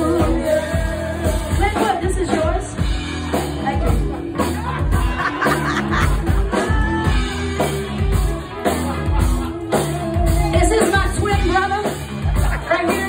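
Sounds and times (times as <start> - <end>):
person singing: 0.0 - 2.6
funk band playing: 0.0 - 13.0
repeating bass line: 0.0 - 13.0.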